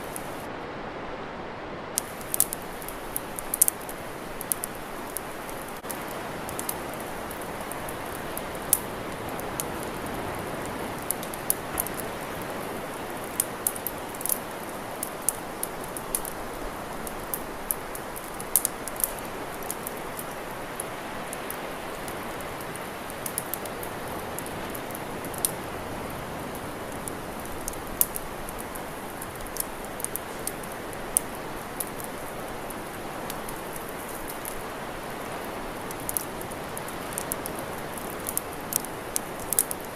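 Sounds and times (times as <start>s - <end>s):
campfire crackling and popping: 0.0s - 0.5s, 2.0s - 39.9s
fire rushing hiss: 0.0s - 0.5s, 2.0s - 19.0s.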